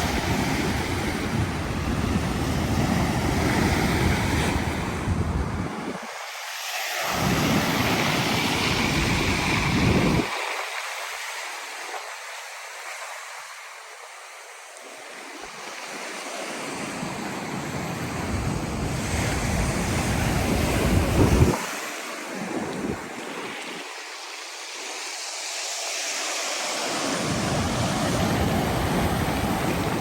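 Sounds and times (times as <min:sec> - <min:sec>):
wind rumbling on microphone: 0:00.0 - 0:06.2, 0:07.1 - 0:10.9, 0:17.2 - 0:23.5, 0:27.1 - 0:30.0
waves washing in: 0:00.0 - 0:30.0.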